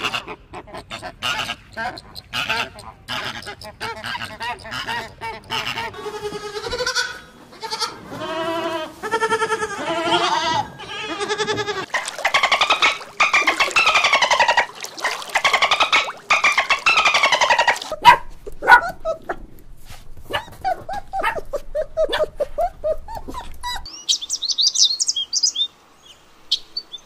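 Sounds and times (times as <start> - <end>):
goat bleating: 6.0 - 11.9
dolphin squeaking: 10.8 - 18.1
flamingos calling: 10.8 - 18.2.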